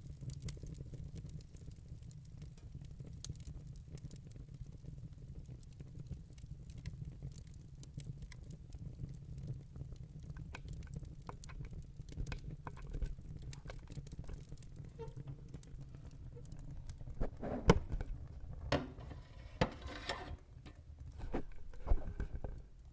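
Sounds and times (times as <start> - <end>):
fire crackling and popping: 0.0 - 22.9.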